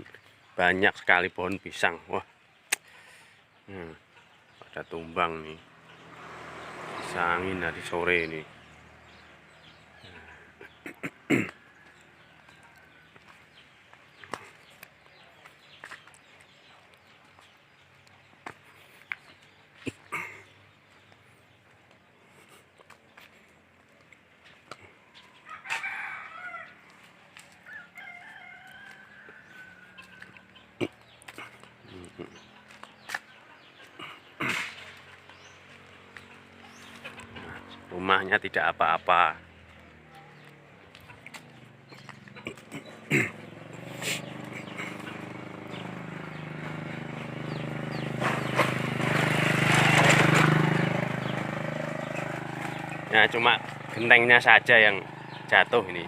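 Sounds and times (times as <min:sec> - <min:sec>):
motorcycle engine passing by: 0:04.5 - 0:23.8, 0:24.4 - 0:56.0
rooster crowing: 0:25.4 - 0:26.9, 0:27.6 - 0:30.4.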